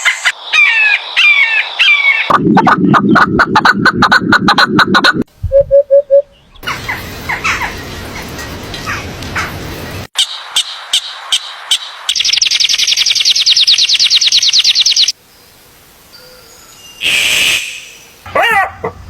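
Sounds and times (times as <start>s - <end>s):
loud fast bird trill: 10.2s - 15.1s
high bird chirps: 10.2s - 15.2s.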